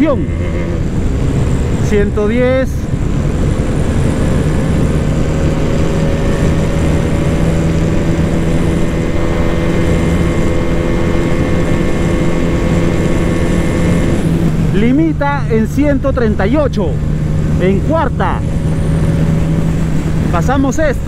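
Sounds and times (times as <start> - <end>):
wind rush on microphone: 0.0 - 16.4
motorcycle engine pulling hard: 0.0 - 21.0.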